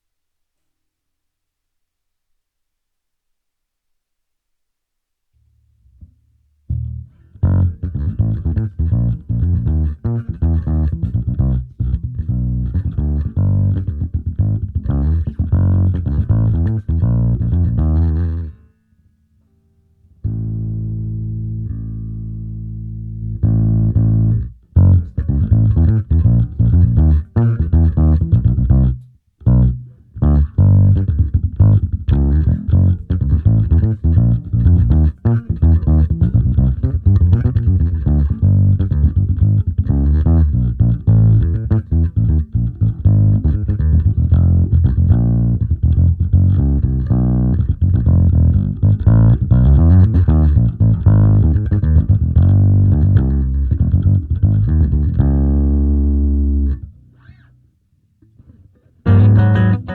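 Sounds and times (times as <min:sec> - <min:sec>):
electric bass guitar riff: 0:06.7 - 0:18.7, 0:20.2 - 0:57.6, 0:58.3 - 0:59.9.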